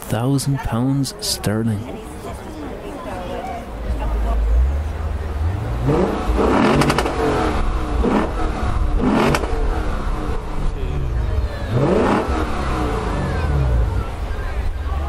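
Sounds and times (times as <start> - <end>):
car engine revving: 3.8 - 15.0
exhaust crackles: 3.8 - 15.0.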